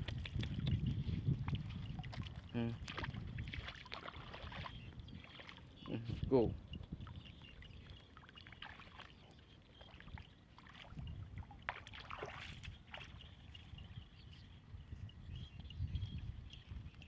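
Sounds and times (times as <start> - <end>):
low wind rumble: 0.0 - 5.3
water splashing and sloshing: 0.0 - 15.1.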